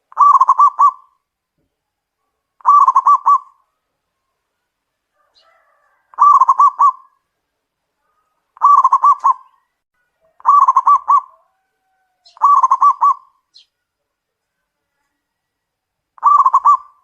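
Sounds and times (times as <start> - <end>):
dove cooing: 0.0 - 1.2, 2.6 - 3.7, 5.2 - 7.2, 8.6 - 9.6, 10.2 - 13.4, 16.2 - 17.0.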